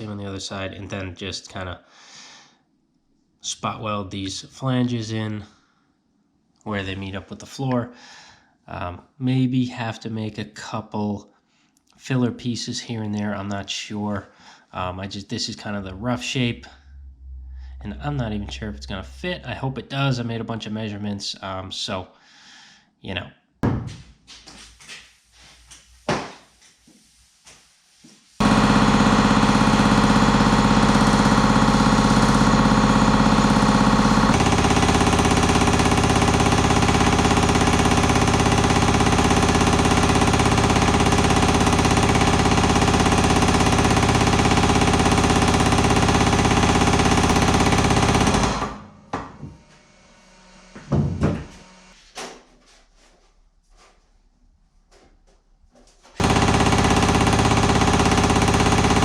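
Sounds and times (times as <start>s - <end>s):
power hammer striking sheet metal: 32.4s - 49.4s.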